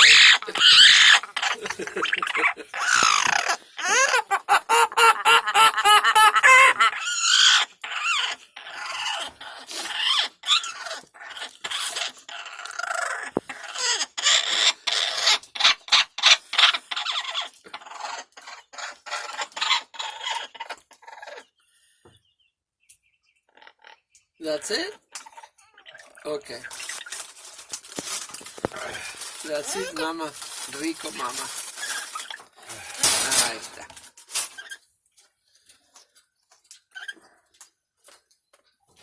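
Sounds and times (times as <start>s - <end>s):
parakeet chattering and squawking: 0.0s - 21.5s, 25.2s - 34.8s.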